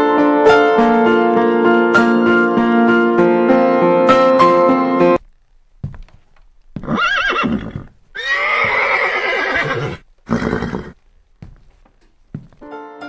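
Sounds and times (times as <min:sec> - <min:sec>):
horse whinnying: 0:06.8 - 0:11.0.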